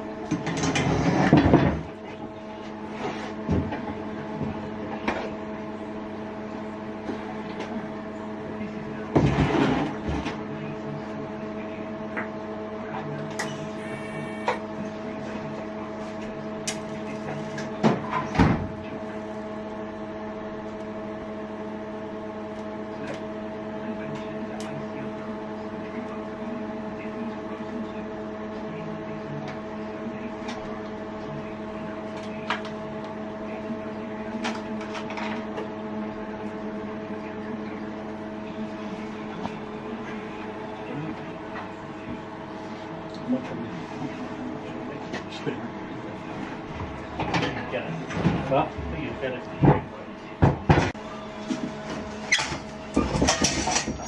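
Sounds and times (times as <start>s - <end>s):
machine humming: 13.2s - 14.8s.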